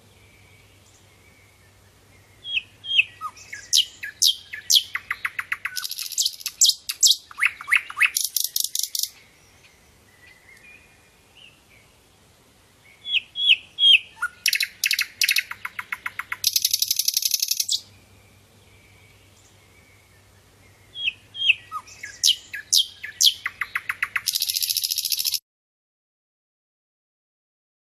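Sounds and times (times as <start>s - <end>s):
flycatcher chattering song: 2.5s - 9.2s, 13.0s - 17.9s, 21.0s - 25.4s.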